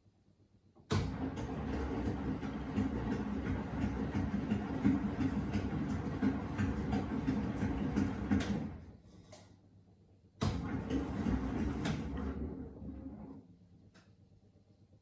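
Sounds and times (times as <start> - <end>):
washing machine churning: 0.9 - 9.1, 10.4 - 13.6.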